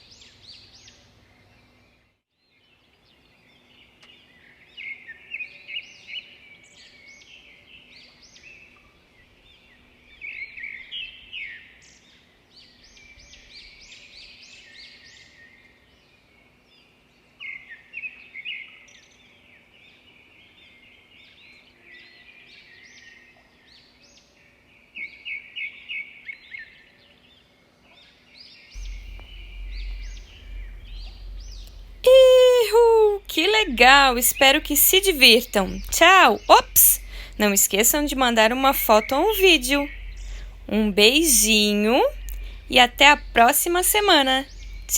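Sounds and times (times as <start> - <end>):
birds chirping and singing: 28.8 - 44.9
low rumble: 28.8 - 44.9.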